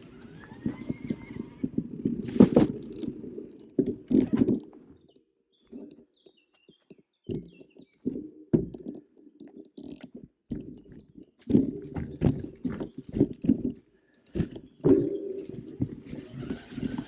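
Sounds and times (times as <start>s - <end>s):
bike clattering over rough trail: 0.0s - 3.2s.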